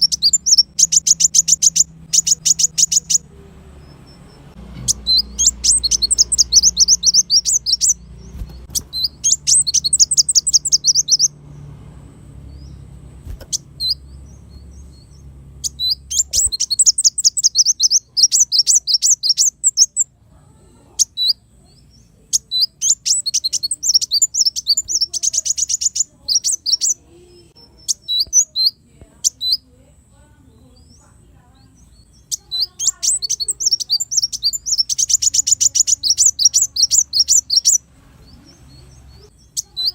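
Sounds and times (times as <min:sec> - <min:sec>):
short bird chirps: 0:00.0 - 0:03.2, 0:03.8 - 0:11.4, 0:12.5 - 0:20.1, 0:32.0 - 0:39.9
sunbird twittering trills: 0:00.0 - 0:39.9.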